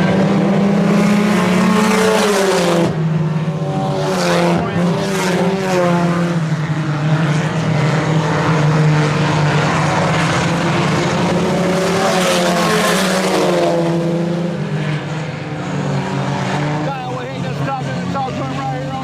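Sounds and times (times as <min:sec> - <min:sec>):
race cars passing at speed: 0:00.0 - 0:19.0.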